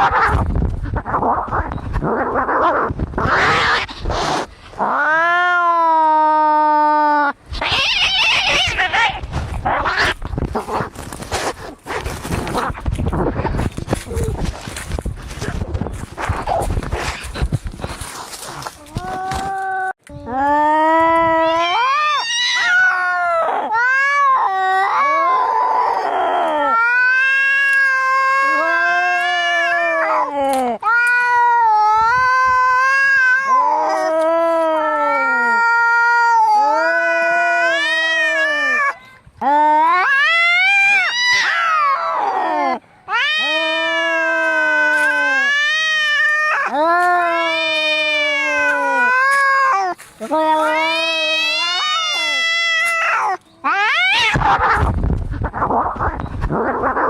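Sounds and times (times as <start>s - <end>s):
cats hissing and scuffling: 0.0s - 5.0s, 7.5s - 19.7s, 43.1s - 57.0s
cat screech: 7.5s - 10.2s, 21.4s - 25.1s, 39.9s - 54.9s
cat caterwauling yowl: 19.0s - 39.0s, 39.6s - 54.9s.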